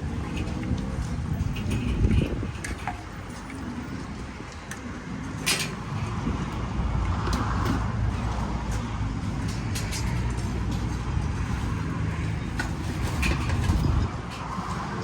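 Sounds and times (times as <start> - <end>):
vehicle engine rumbling: 0.0 - 15.0
clicks and clatter: 7.0 - 15.0.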